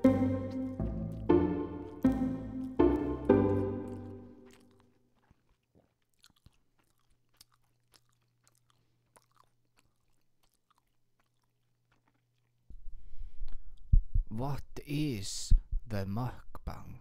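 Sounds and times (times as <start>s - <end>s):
chewing with mouth clicks: 0.4s - 12.7s.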